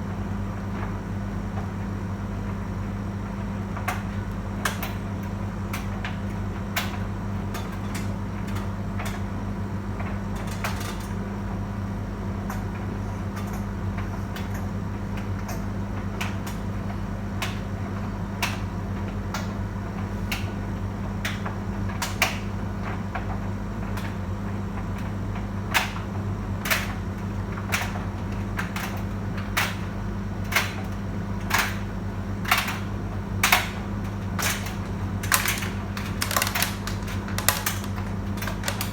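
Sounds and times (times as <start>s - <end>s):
tumble dryer motor hum: 31.9s - 38.9s
load clicking against drum: 34.4s - 38.9s.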